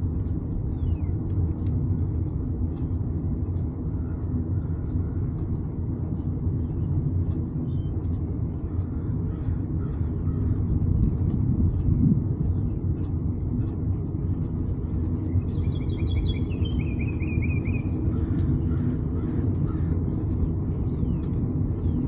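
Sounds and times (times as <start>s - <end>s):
wind buffeting microphone: 0.0s - 22.0s
bird singing descending chirps: 15.3s - 18.6s.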